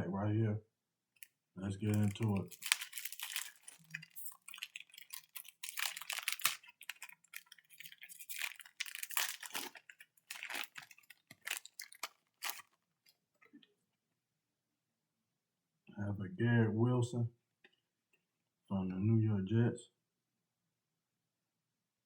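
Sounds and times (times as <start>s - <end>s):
wrapper crackling and rustling: 1.8s - 13.2s.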